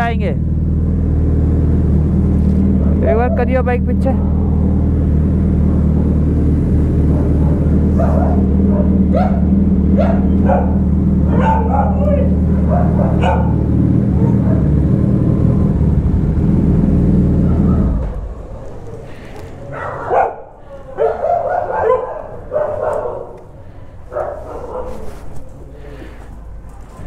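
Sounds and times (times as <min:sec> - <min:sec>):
motorcycle engine idling: 0:00.0 - 0:19.6
dog barking: 0:07.0 - 0:15.0, 0:17.4 - 0:23.4, 0:24.1 - 0:25.4.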